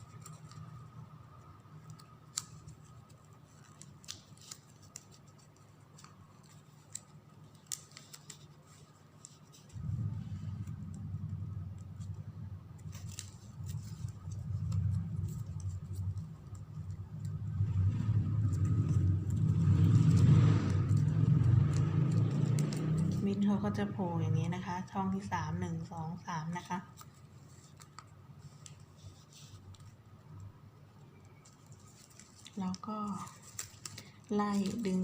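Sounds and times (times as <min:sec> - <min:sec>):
ribbon clicks and rustles: 0:00.0 - 0:23.8, 0:25.9 - 0:30.5, 0:31.1 - 0:35.0
low motor hum: 0:09.7 - 0:26.5.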